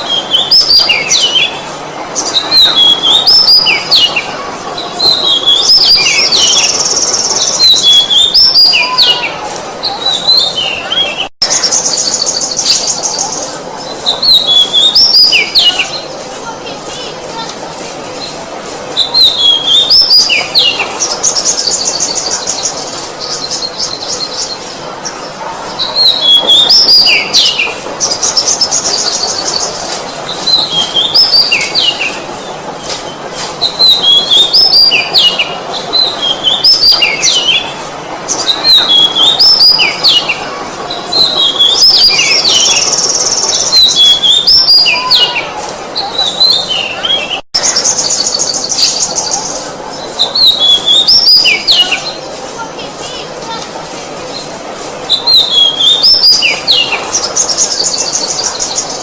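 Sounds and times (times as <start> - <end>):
bird singing whistled notes: 14.1 - 16.0, 55.1 - 59.0.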